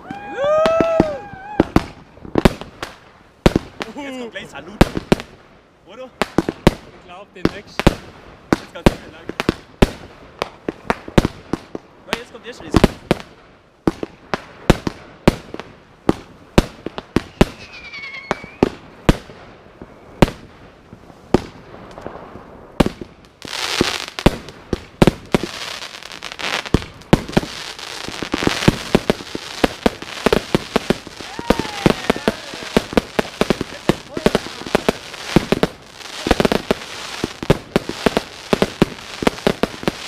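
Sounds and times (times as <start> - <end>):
firework crackle: 0.0 - 40.0
fireworks firing shots: 0.1 - 5.4, 6.0 - 40.0
firework whistling: 17.2 - 18.8, 25.1 - 40.0.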